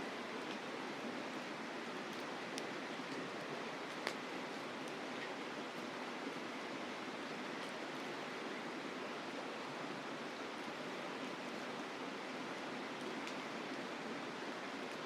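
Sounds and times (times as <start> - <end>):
faint campfire crackles: 0.0 - 15.0.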